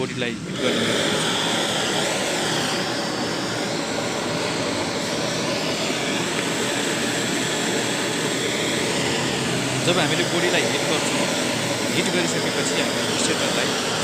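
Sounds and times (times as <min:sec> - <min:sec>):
heating tool roaring: 0:00.0 - 0:14.0.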